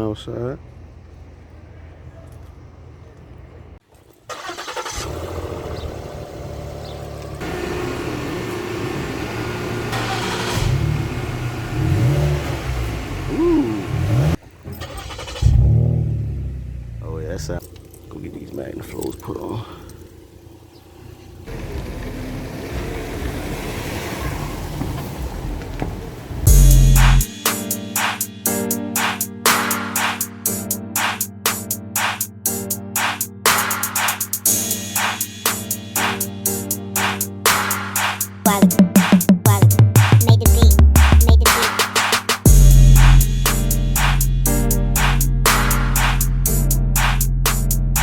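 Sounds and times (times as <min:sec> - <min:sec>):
car engine starting and idling: 0:00.0 - 0:28.2, 0:33.4 - 0:48.0
car engine revving: 0:04.3 - 0:28.2, 0:40.0 - 0:48.0
loud raw exhaust rumble: 0:05.0 - 0:14.6, 0:15.4 - 0:18.3, 0:20.0 - 0:27.3, 0:42.4 - 0:48.0
loud music with heavy bass: 0:26.5 - 0:48.0.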